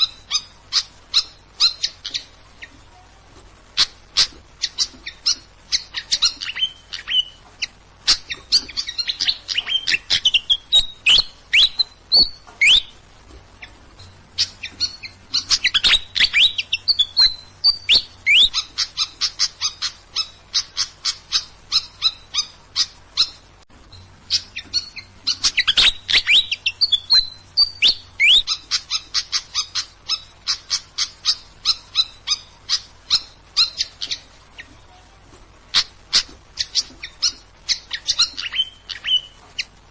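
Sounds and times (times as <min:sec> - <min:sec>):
songbird chirps and trills: 0:00.0 - 0:39.9.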